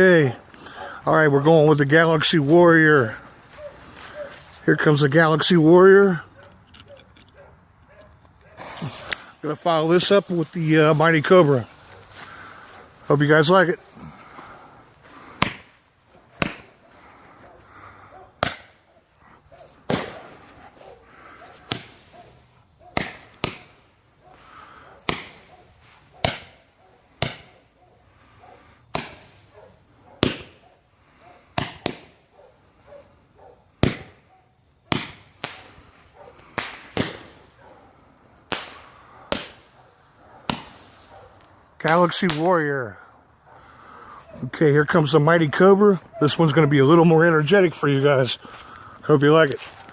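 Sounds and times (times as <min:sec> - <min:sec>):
firework bangs with echo: 0:19.9 - 0:20.4, 0:23.0 - 0:23.8, 0:25.0 - 0:25.5, 0:26.2 - 0:27.6, 0:28.9 - 0:29.4, 0:30.2 - 0:30.6, 0:31.6 - 0:32.2, 0:33.8 - 0:34.2, 0:34.9 - 0:35.8, 0:36.4 - 0:37.5, 0:38.5 - 0:39.8, 0:40.5 - 0:41.0.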